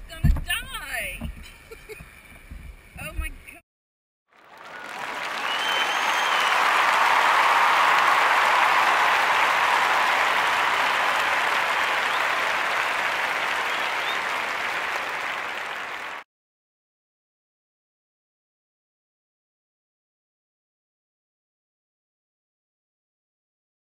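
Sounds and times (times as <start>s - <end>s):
applause: 4.3s - 16.3s.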